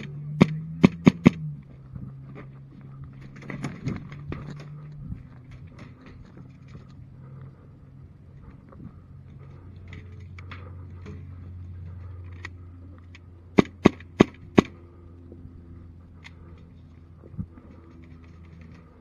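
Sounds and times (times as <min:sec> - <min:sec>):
airsoft pistol shots: 0:00.4 - 0:01.4, 0:13.6 - 0:14.8.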